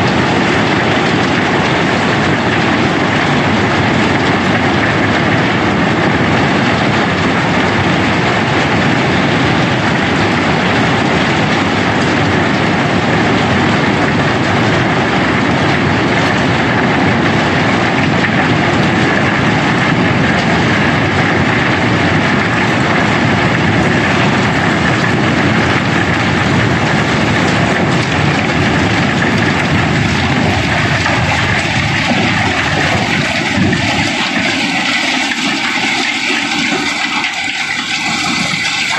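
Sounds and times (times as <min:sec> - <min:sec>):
stones pouring and clattering: 0:22.2 - 0:38.9.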